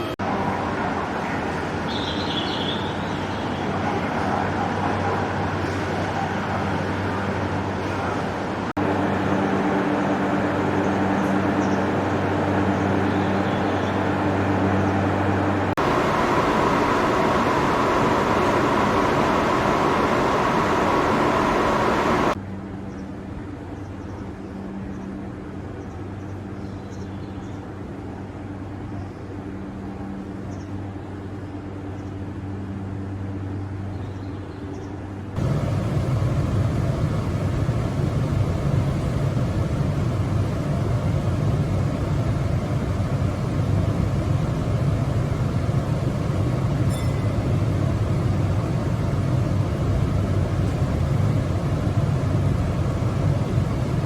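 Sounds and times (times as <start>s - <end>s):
electric train hum and rumble: 0.0s - 54.0s.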